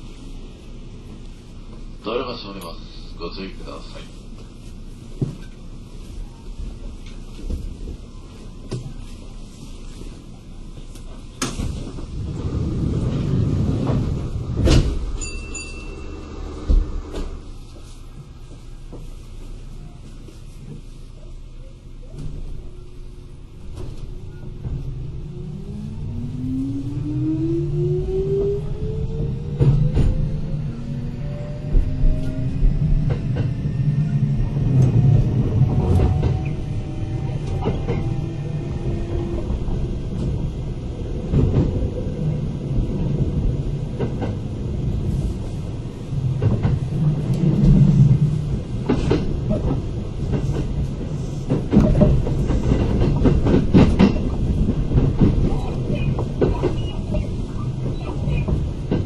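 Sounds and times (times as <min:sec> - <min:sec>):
train running rumble: 0:00.0 - 0:59.0
train motor and gear whine: 0:14.3 - 0:17.6.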